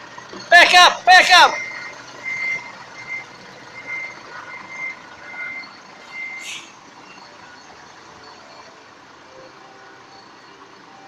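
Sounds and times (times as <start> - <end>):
truck engine running: 0.0 - 11.0
truck reversing alarm beeping: 0.0 - 11.0
short air hiss: 6.4 - 6.8.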